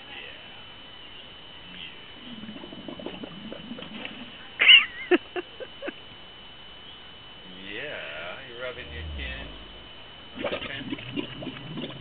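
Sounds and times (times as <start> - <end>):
camel gurgling: 2.2 - 4.4, 8.8 - 12.0.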